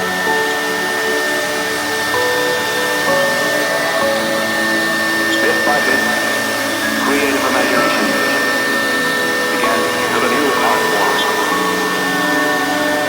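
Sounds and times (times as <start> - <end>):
wood router whining: 0.0 - 13.0.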